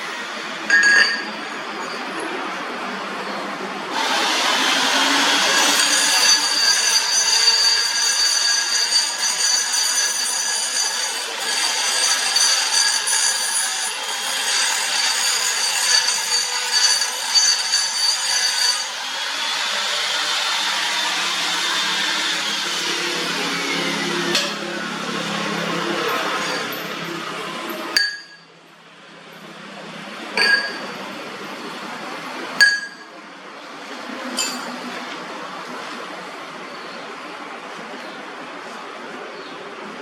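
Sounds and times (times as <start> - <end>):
metal lathe cutting iron: 0.0 - 2.3, 3.2 - 28.4, 32.6 - 33.1
high-pitched ringing from the cut: 0.7 - 2.2, 5.5 - 19.0, 28.0 - 28.5, 32.6 - 33.1.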